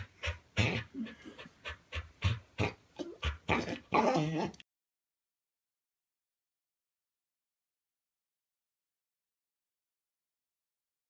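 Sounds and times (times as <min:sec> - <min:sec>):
dog panting: 0:00.0 - 0:03.8.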